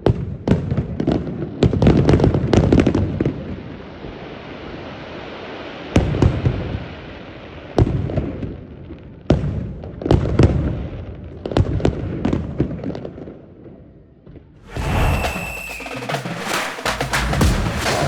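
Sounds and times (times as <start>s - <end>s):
fireworks bursting with bangs: 14.7s - 18.0s
music: 14.7s - 18.0s.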